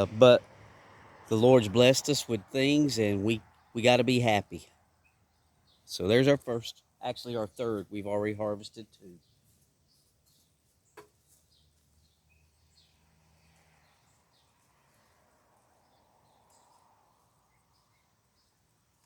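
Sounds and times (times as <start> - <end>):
bird chirps: 4.9 - 18.7.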